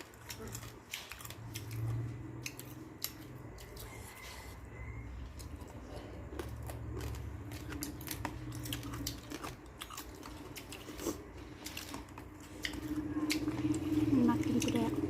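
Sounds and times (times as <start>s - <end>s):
crunching and chewing: 0.0s - 15.0s
steady low hum: 0.0s - 15.0s.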